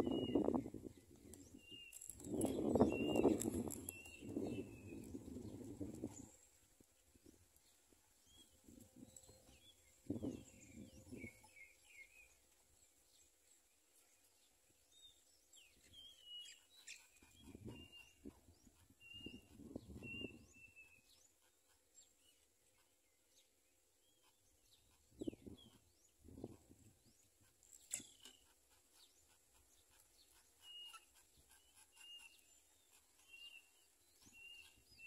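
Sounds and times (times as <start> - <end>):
faint bird chirps: 15.0 - 22.9, 24.1 - 35.0.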